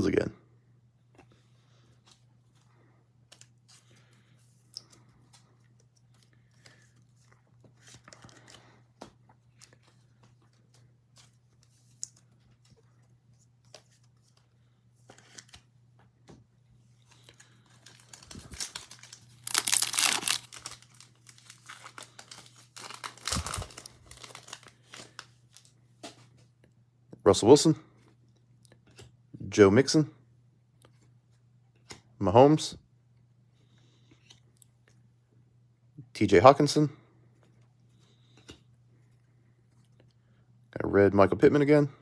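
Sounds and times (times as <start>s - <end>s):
card handling rustling and clicks: 2.0s - 16.4s, 17.0s - 26.5s
wrapper tearing and crinkling: 17.8s - 25.7s.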